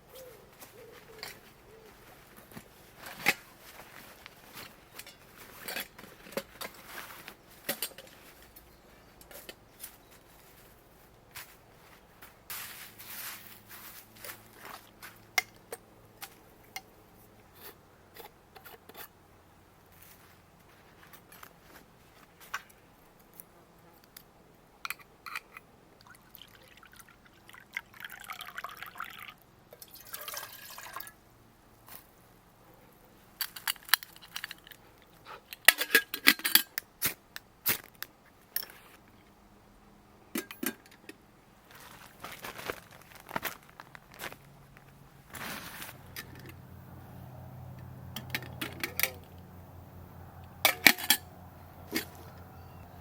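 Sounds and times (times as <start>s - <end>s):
rustling and light crackling: 0.0s - 15.4s, 19.8s - 24.3s, 31.8s - 35.9s, 41.6s - 49.6s
liquid poured into container: 26.0s - 31.2s.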